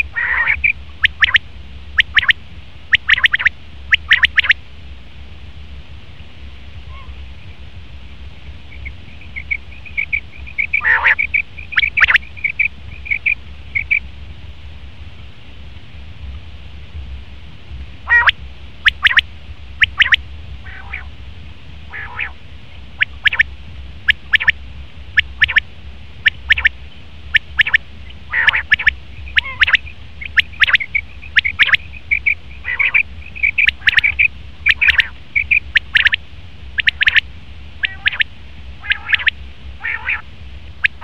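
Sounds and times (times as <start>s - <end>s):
quail calling: 0.0s - 1.4s, 2.0s - 4.6s, 6.9s - 7.2s, 8.7s - 14.0s, 18.1s - 19.2s, 19.8s - 21.1s, 21.9s - 22.4s, 23.0s - 23.4s, 24.1s - 24.6s, 25.2s - 25.6s, 26.3s - 26.7s, 27.4s - 36.2s, 36.8s - 37.2s, 37.8s - 40.2s.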